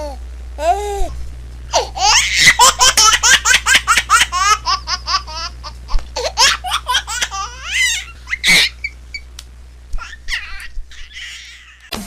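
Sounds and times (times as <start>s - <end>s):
baby giggling and shrieking: 1.7s - 2.8s, 10.0s - 11.9s.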